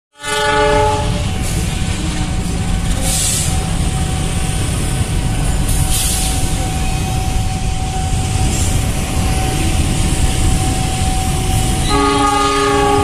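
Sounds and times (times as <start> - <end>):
horn-like pitched tone: 0.2 - 2.2, 9.3 - 13.0
freight train rumbling past: 0.2 - 13.0.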